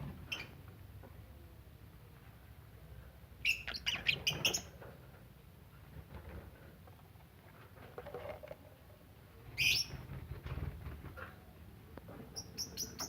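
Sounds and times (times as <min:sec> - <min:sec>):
lovebirds chirping: 0:03.4 - 0:04.7, 0:09.5 - 0:10.0, 0:12.3 - 0:13.0.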